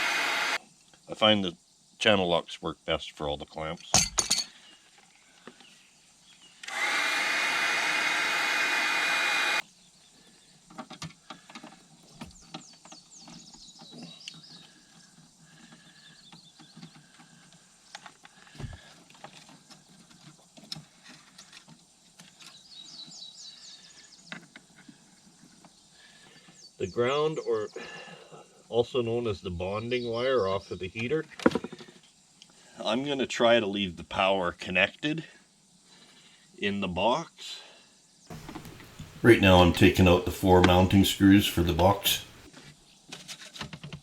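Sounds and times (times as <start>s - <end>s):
power drill running: 0.0s - 0.6s, 6.6s - 9.6s, 38.3s - 42.5s.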